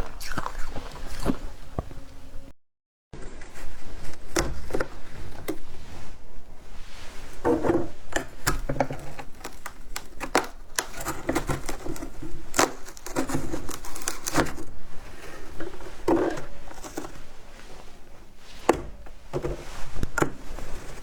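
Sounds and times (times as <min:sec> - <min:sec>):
ice being chewed: 0:00.0 - 0:01.9, 0:09.0 - 0:17.2.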